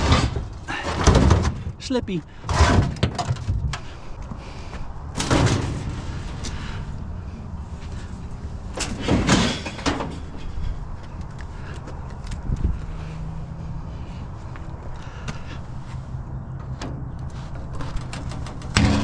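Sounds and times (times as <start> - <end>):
scraping bangs: 0.0 - 1.8, 2.4 - 3.9, 5.1 - 10.7, 16.8 - 19.0
scrap metal being handled: 7.8 - 10.8, 16.7 - 19.0.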